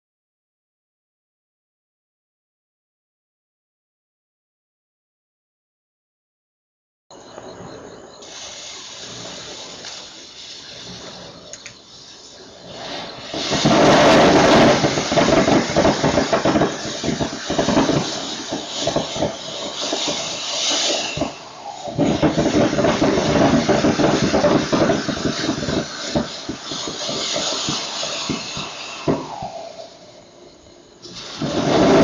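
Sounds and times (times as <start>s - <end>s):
firework fountain hissing and crackling: 7.1s - 32.0s.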